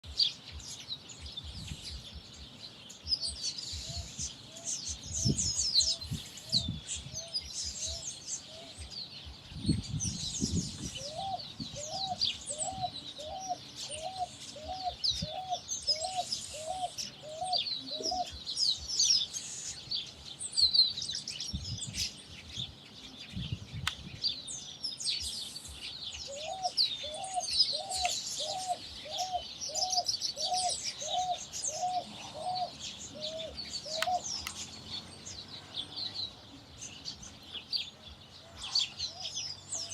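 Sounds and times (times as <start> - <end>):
flock of birds chattering: 0.0 - 39.9
low rising bird call: 10.6 - 18.5, 26.2 - 36.4.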